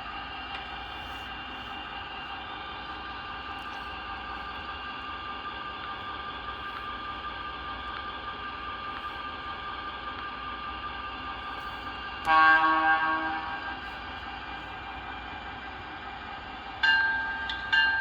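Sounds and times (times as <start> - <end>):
loud horn blast: 12.2 - 14.0.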